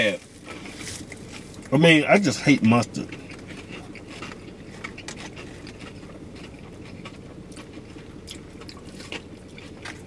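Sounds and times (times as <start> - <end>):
people chewing food: 0.0 - 10.0
steady low hum: 0.0 - 10.0
wet clicks and crunches: 2.7 - 10.0.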